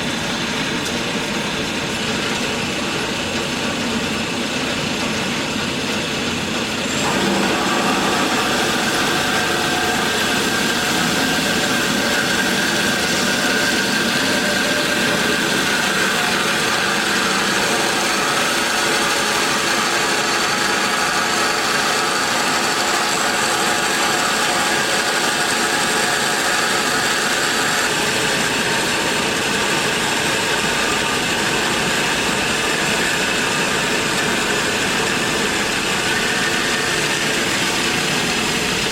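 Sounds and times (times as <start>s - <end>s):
band saw whirring: 0.0s - 38.9s.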